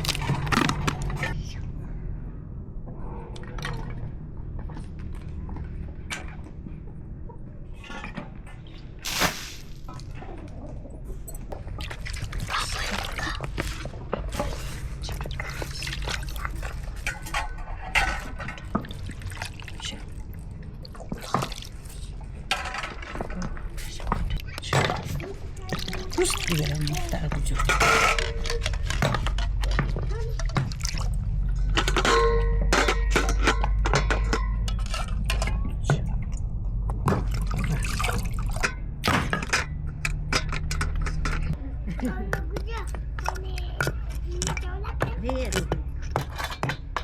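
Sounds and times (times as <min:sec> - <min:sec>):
low steady rumble: 0:00.0 - 0:47.0
liquid splashing and dripping: 0:09.0 - 0:10.7, 0:11.5 - 0:32.0, 0:33.6 - 0:39.4
wet drips: 0:11.5 - 0:14.0, 0:18.6 - 0:22.3, 0:24.0 - 0:27.7, 0:30.4 - 0:31.5, 0:37.1 - 0:38.8.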